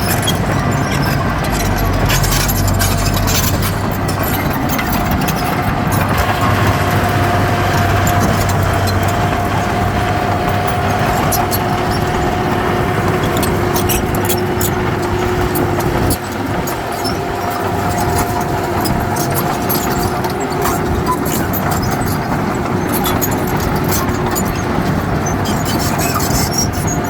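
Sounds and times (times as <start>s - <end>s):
steady whine: 0.0s - 21.0s
heavy diesel machinery running: 0.0s - 27.0s.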